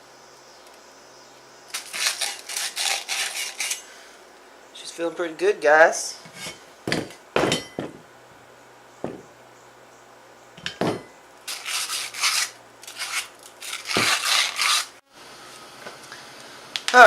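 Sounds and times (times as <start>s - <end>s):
metal rubbing strokes: 1.8s - 3.9s, 6.2s - 6.7s, 11.5s - 15.0s.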